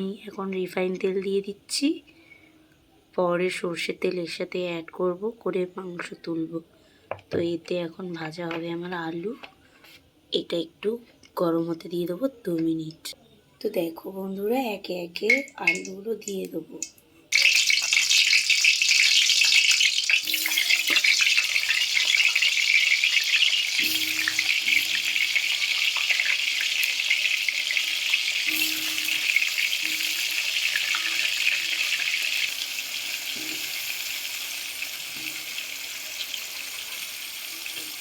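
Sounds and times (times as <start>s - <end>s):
potatoes sizzling in oil: 17.3s - 38.0s.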